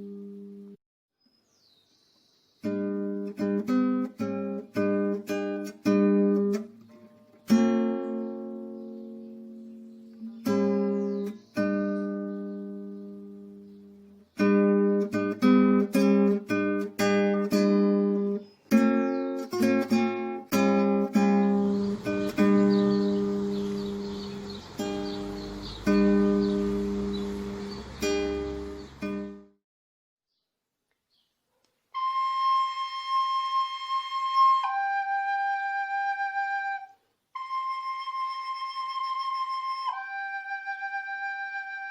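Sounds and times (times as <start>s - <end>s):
acoustic guitar strumming chords: 2.6s - 29.5s
flute playing held notes: 31.9s - 41.9s.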